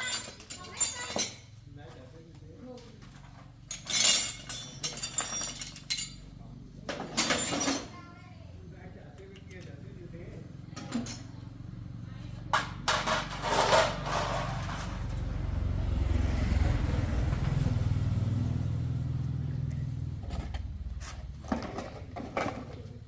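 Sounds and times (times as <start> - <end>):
motorcycle engine running: 14.0 - 23.0.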